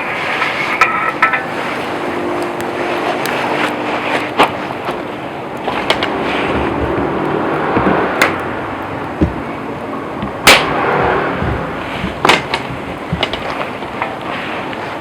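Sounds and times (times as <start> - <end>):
burning wood crackling and popping: 0.0 - 15.0
campfire hissing: 0.0 - 15.0.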